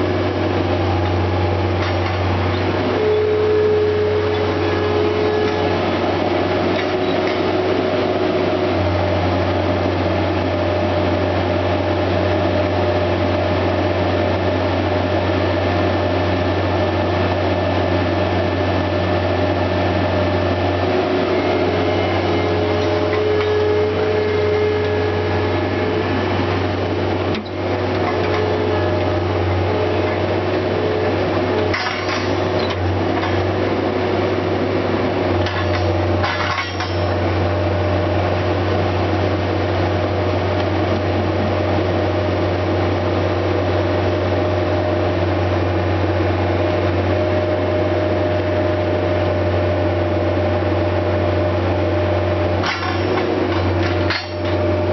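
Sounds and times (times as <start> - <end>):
higher whine: 0.0 - 10.5, 18.6 - 44.2
skid steer engine droning: 0.0 - 54.9.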